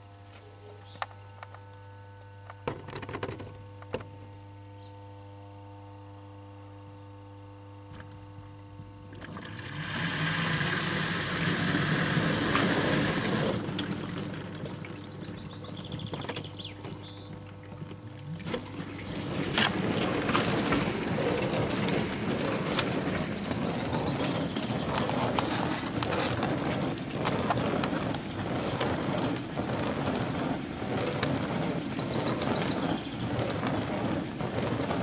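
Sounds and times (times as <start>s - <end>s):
washing appliance humming: 0.0s - 35.0s
water rushing through appliance: 8.9s - 35.0s.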